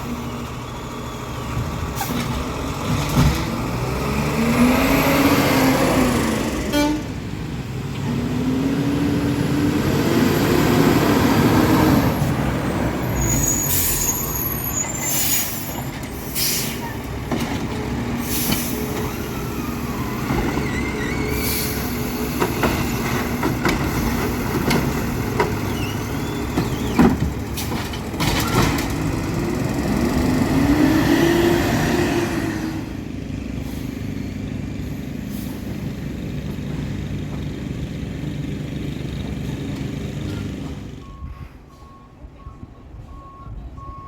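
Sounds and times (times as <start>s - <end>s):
garbage truck engine revving: 1.4s - 41.0s
air brake hisses: 13.4s - 17.0s.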